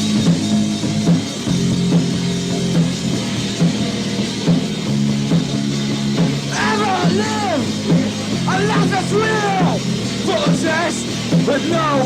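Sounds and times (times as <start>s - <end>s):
punk band instrumental: 0.0s - 12.0s
drum hits: 4.5s - 11.7s.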